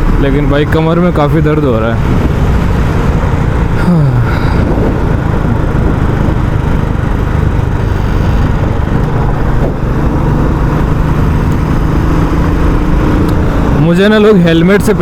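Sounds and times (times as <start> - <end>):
motorcycle engine thumping: 2.0 - 13.8.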